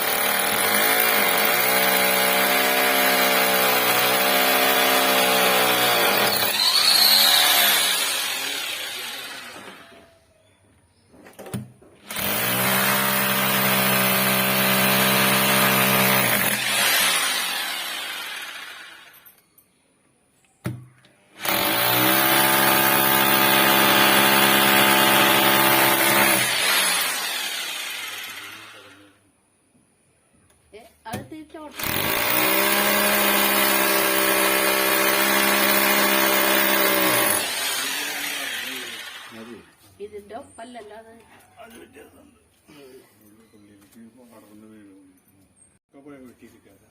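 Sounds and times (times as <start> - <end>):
power tool motor running: 0.0 - 10.0, 12.0 - 19.2, 21.4 - 29.1, 31.8 - 39.7.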